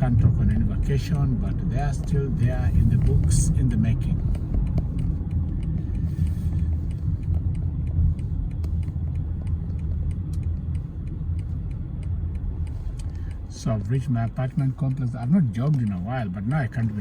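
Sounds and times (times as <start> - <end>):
car engine and tyres rumbling: 0.0 - 17.0
faint clicks: 3.0 - 16.1.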